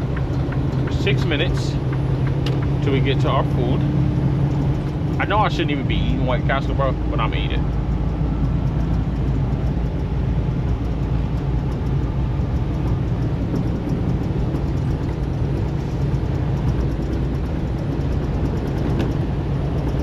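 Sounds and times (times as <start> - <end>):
road noise: 0.0 - 20.0
truck engine rumble: 0.0 - 20.0.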